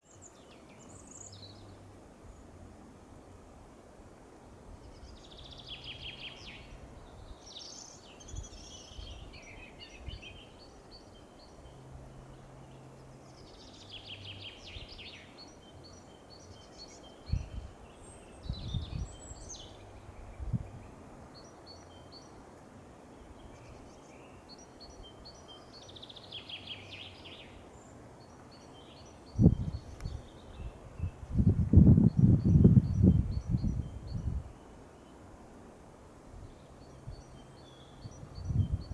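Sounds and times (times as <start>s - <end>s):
songbird song phrase: 0.0s - 38.9s.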